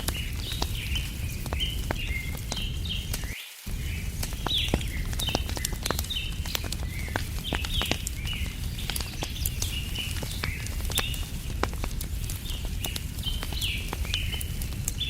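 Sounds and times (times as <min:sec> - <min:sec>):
birds chirping: 0:00.0 - 0:15.0
campfire crackling and popping: 0:00.0 - 0:15.0
steady low rumble: 0:00.0 - 0:15.0.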